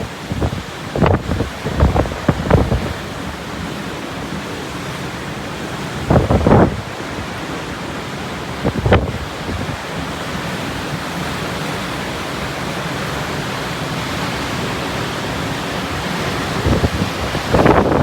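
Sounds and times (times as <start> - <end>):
wind buffeting microphone: 0.0 - 3.7, 5.9 - 7.2, 8.5 - 10.0, 15.9 - 18.0
sea: 0.0 - 18.0
typhoon wind: 0.0 - 18.0.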